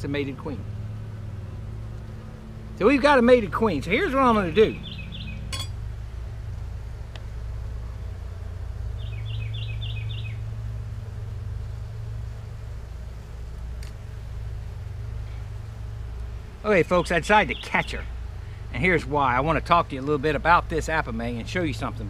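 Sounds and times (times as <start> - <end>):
steady low hum: 0.0 - 22.0
small bird chirping: 4.5 - 5.7, 8.9 - 10.5.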